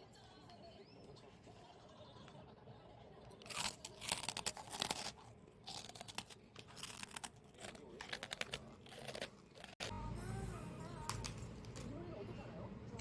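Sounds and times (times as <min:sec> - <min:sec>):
crunchy snack chewing: 0:03.4 - 0:09.9.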